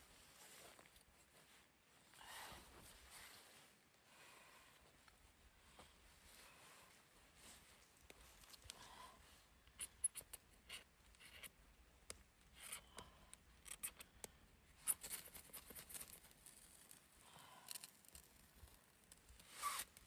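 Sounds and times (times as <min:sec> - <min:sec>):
clicks and rustles of handling: 0:07.4 - 0:08.9, 0:09.6 - 0:20.0.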